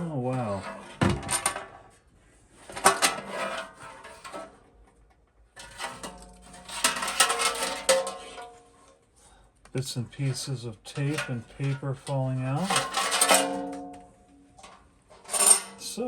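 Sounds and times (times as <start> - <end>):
metal chassis clattering and scraping: 0.3 - 2.0, 2.6 - 4.6, 5.6 - 8.9, 10.3 - 16.0.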